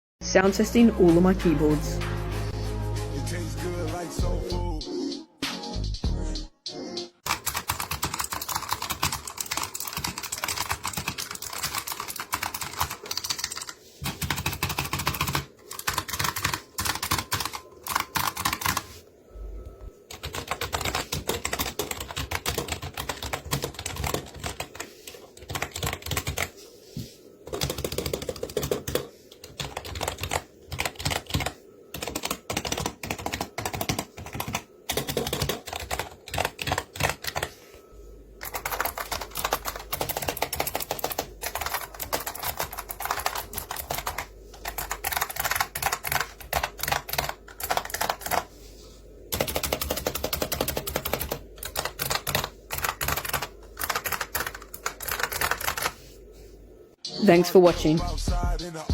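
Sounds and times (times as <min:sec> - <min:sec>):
keyboard typing clatter: 0:07.2 - 0:19.0, 0:20.1 - 0:26.5, 0:27.4 - 0:37.5, 0:38.4 - 0:48.5, 0:49.3 - 0:56.0.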